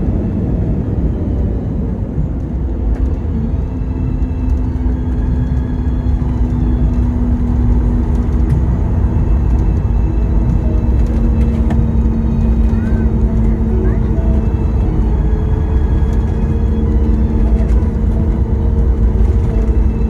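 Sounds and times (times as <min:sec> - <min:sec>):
airplane landing rumble: 0:00.0 - 0:20.0
steady hum: 0:00.0 - 0:20.0.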